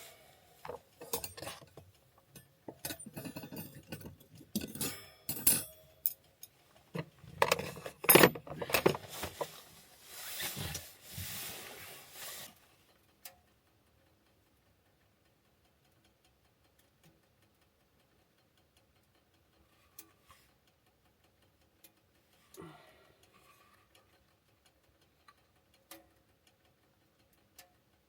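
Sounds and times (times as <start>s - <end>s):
soft hiss: 0.0s - 1.0s, 9.0s - 12.8s
dishes and utensils clattering: 0.0s - 6.1s, 7.0s - 9.7s.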